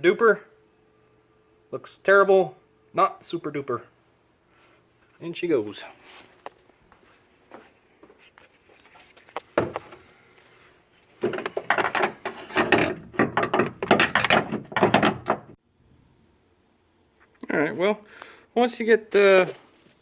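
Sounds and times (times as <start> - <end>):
metal parts knocking and rattling: 11.2 - 15.6.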